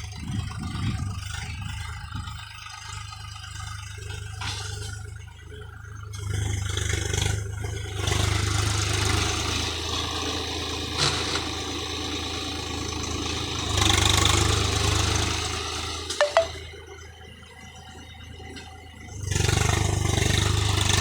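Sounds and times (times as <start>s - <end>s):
tractor diesel engine running: 0.0s - 10.7s.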